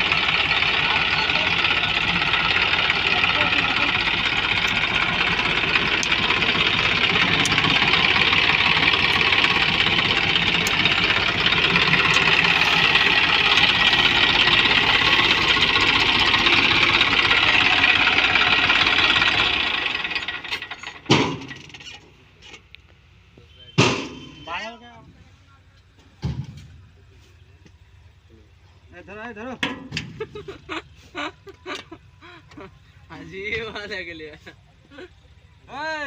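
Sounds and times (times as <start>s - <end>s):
tractor diesel engine running: 0.0s - 36.0s
sharp thump: 21.1s - 21.6s, 23.8s - 24.4s.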